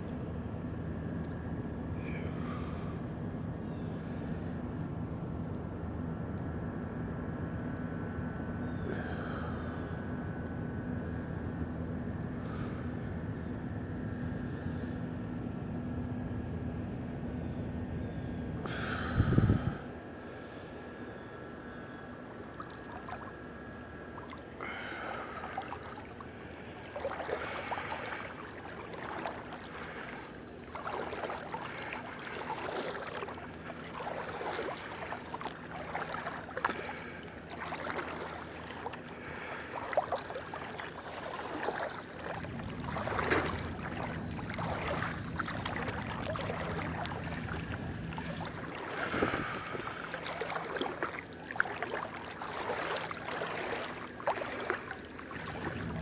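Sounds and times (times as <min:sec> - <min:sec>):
water splashing from swimming: 0:22.2 - 0:56.0.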